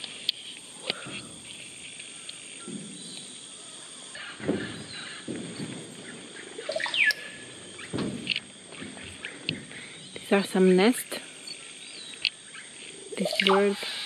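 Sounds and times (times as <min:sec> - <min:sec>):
insects droning: 0:00.0 - 0:14.0
bird whistling call: 0:06.6 - 0:07.9, 0:11.5 - 0:14.0.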